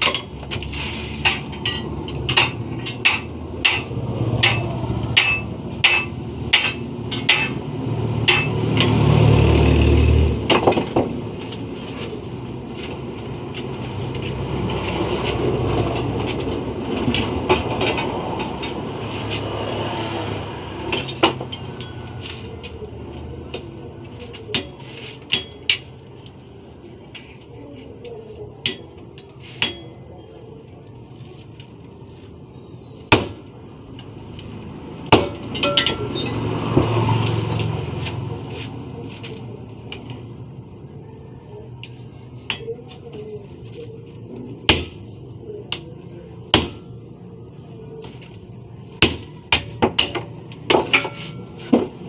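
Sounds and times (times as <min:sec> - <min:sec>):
hammer ringing on metal: 0:01.7 - 0:09.0, 0:29.6 - 0:30.1, 0:33.1 - 0:33.6, 0:35.1 - 0:36.2, 0:46.5 - 0:46.9.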